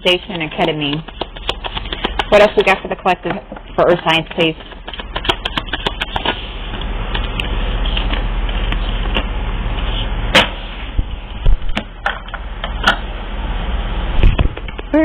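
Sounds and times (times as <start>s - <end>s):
cards shuffling rustle: 0.1s - 3.0s, 3.9s - 10.1s
cards clicking and tapping: 0.3s - 6.4s.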